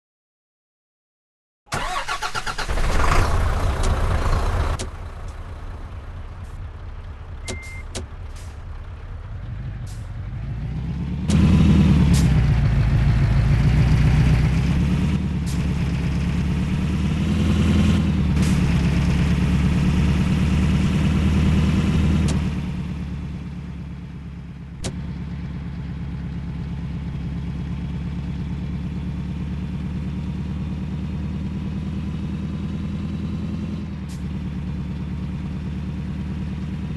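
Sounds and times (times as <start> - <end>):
truck engine running: 1.7 - 36.9
short high beep: 7.5 - 7.9.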